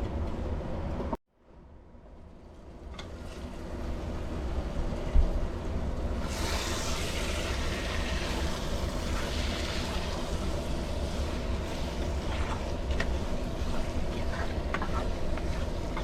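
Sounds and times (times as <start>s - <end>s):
gas burner hissing: 6.1s - 16.0s.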